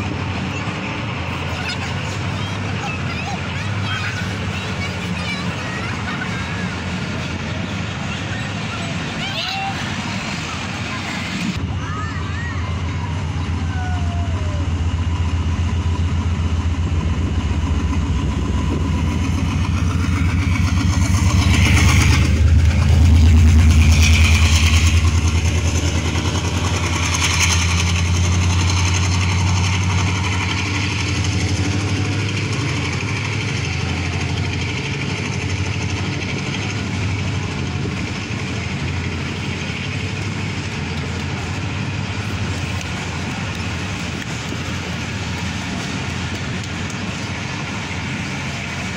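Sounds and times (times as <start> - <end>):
diesel locomotive engine drone: 0.0 - 48.9
rushing hiss: 12.4 - 48.9.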